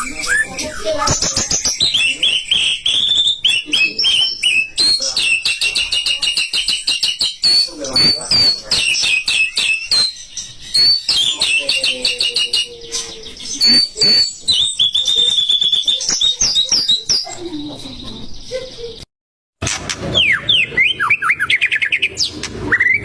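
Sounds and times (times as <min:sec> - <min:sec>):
bird singing chirps and whistles: 0:00.0 - 0:17.4, 0:20.1 - 0:23.0.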